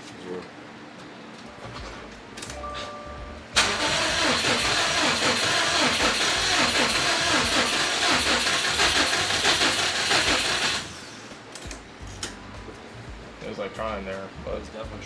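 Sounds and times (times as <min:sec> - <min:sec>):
car engine cranking on starter: 0:03.6 - 0:11.3.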